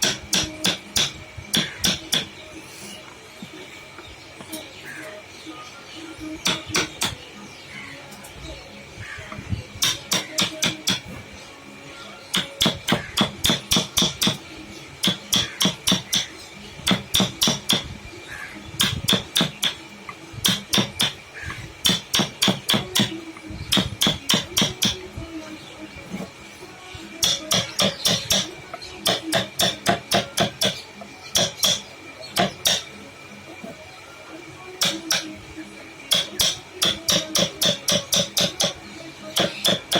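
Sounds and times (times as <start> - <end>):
hammer tapping chisel into wood: 16.9 - 17.8.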